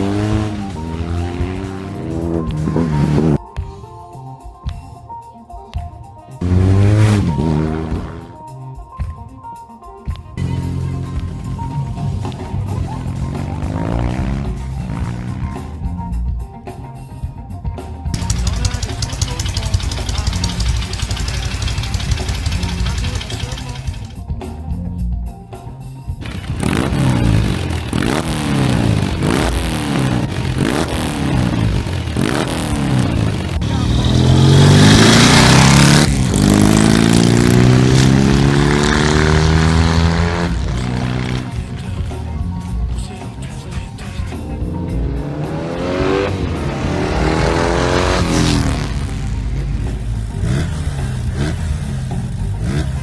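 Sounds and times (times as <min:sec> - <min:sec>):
motorcycle engine revving: 0:00.0 - 0:03.4, 0:06.4 - 0:08.4, 0:12.5 - 0:15.8, 0:18.1 - 0:24.2, 0:26.2 - 0:42.6, 0:44.1 - 0:53.0
music: 0:00.0 - 0:53.0.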